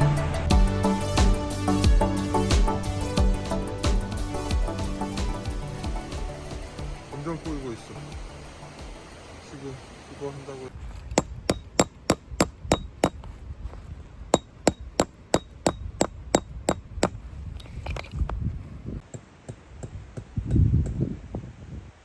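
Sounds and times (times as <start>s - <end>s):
hammer striking metal peg: 10.9s - 13.3s, 14.3s - 17.2s.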